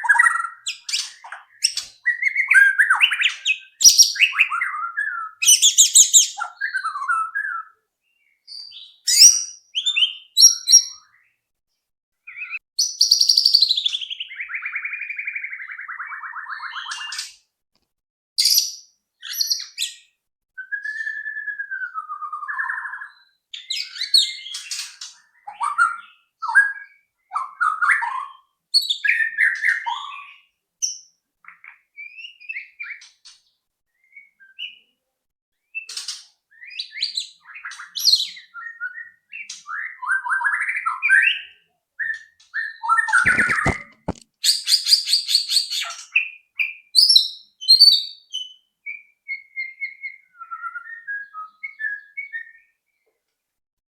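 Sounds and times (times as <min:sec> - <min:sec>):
songbird singing whistled phrases: 0:00.0 - 0:11.3, 0:12.2 - 0:17.3, 0:18.4 - 0:33.1, 0:33.9 - 0:34.9, 0:36.5 - 0:43.8, 0:44.4 - 0:52.9.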